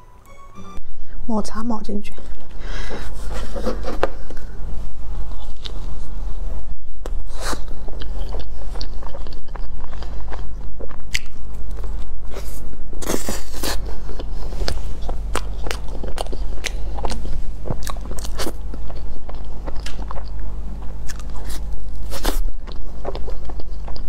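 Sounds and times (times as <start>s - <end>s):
steady low hum: 0.0s - 24.0s
person chewing soft food: 2.6s - 6.4s, 7.0s - 24.0s.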